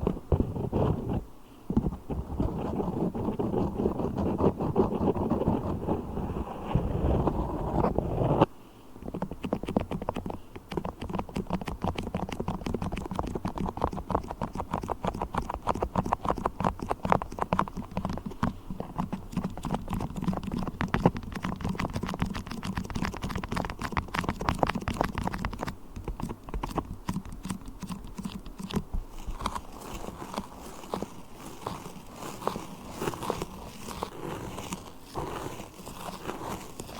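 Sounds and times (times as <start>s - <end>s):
sticky clicks and crackles of wax: 9.4s - 36.9s
rumbling rustle: 27.6s - 36.9s.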